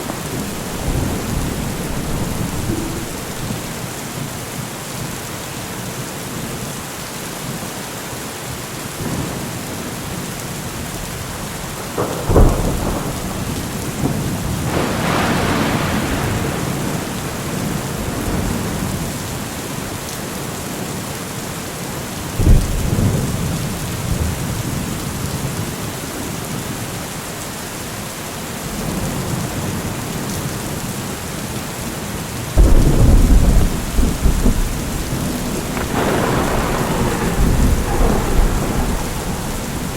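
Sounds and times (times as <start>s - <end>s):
thunder: 0.0s - 4.6s, 11.5s - 19.4s, 22.4s - 25.0s, 32.6s - 39.9s
heavy rain: 0.0s - 39.9s.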